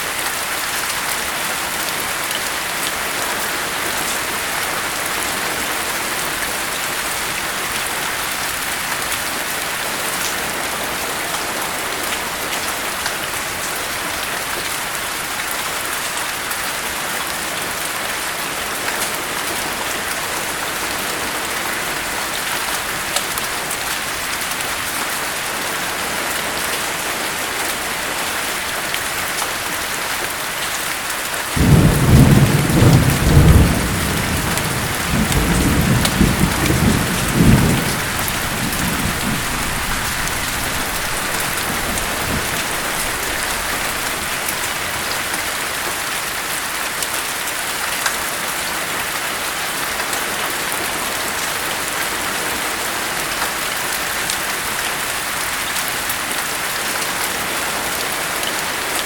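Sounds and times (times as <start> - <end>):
heavy rain: 0.0 - 59.0
low thunder rumble: 31.6 - 44.4.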